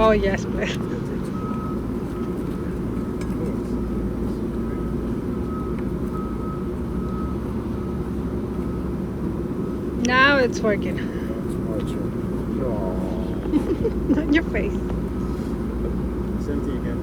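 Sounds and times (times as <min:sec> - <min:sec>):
honeybees buzzing: 0:12.5 - 0:15.5.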